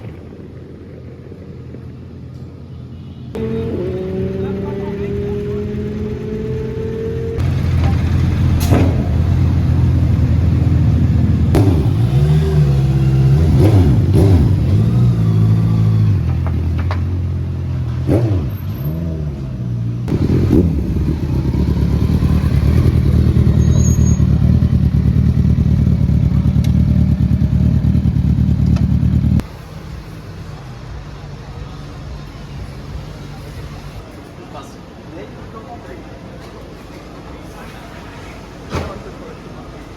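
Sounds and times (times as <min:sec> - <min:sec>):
motorcycle engines revving: 0:03.3 - 0:31.3.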